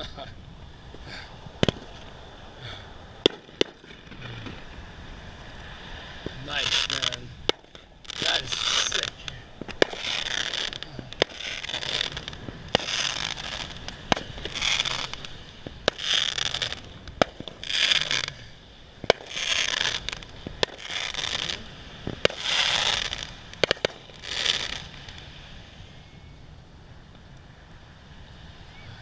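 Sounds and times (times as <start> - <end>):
fireworks cracking and crackling: 1.0 - 4.8, 6.2 - 25.4.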